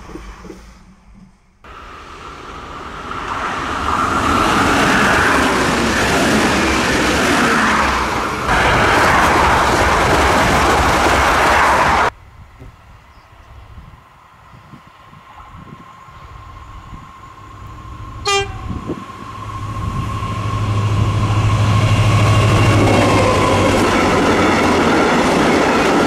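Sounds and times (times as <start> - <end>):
train passing at speed: 0.0 - 26.0.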